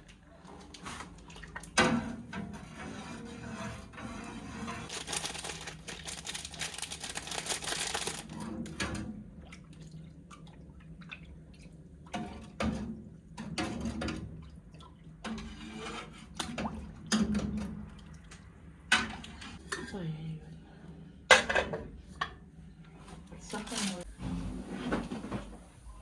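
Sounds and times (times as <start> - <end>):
water running: 4.2 - 12.6.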